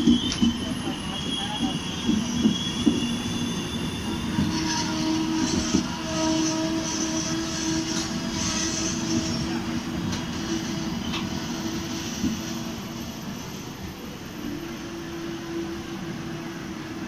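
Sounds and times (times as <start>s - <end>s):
wheels squealing: 0.0s - 13.5s
high pulsing squeal: 0.0s - 16.6s
train wheels rumbling on rails: 0.0s - 17.0s.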